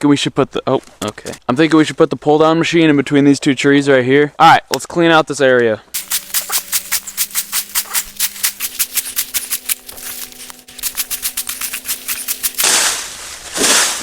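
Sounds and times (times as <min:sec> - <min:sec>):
fast shaker-like beat: 0:06.0 - 0:12.7.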